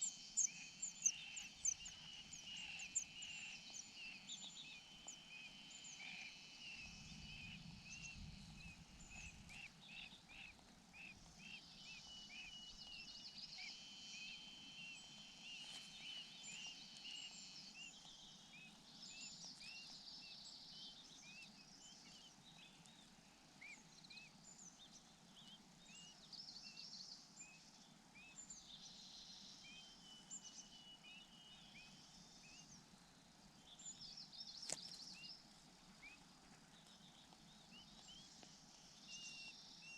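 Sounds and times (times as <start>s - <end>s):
bird chirping: 0.0s - 32.9s, 33.5s - 39.9s
low rumble: 6.8s - 10.3s.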